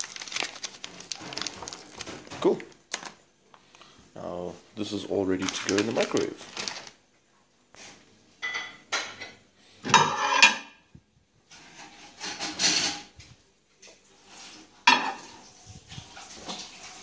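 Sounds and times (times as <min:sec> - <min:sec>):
dishes clattering and scraping: 0:08.4 - 0:10.9, 0:11.5 - 0:13.2, 0:13.8 - 0:15.5.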